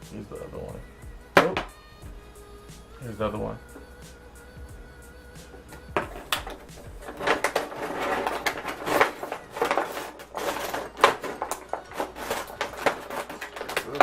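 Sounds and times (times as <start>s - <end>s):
plastic packaging crinkling: 6.1s - 14.0s.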